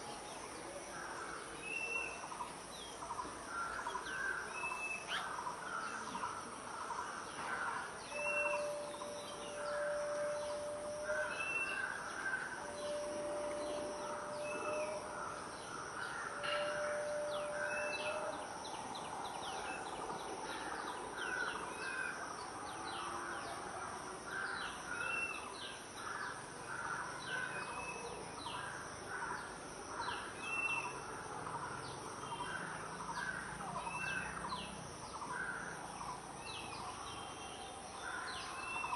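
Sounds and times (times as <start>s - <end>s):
birds chirping chorus: 0.0s - 38.9s.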